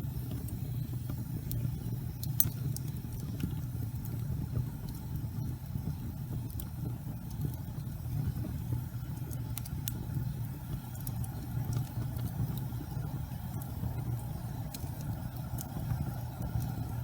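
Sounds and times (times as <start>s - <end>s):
fire crackling in a fireplace: 0.0s - 17.0s.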